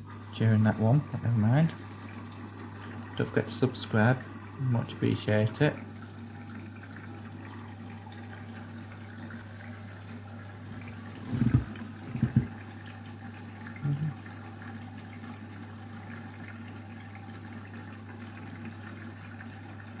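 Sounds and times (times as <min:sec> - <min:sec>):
drain pump humming: 0:00.0 - 0:20.0
water running through pump: 0:00.0 - 0:20.0
short knocks: 0:11.3 - 0:12.6.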